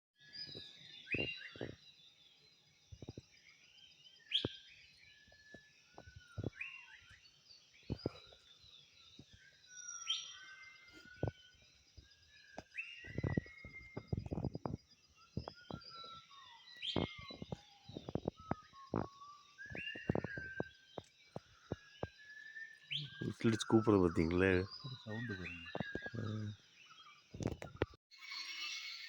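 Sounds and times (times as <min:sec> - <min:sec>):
bird calls: 0:00.2 - 0:02.2, 0:02.9 - 0:28.0
bird whistling phrase: 0:15.5 - 0:20.7, 0:22.2 - 0:26.6.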